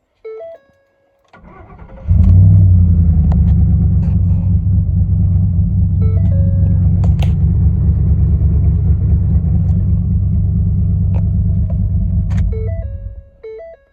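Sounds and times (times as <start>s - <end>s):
starter cranking engine: 1.4s - 13.0s
engine idling loudly: 2.1s - 13.2s.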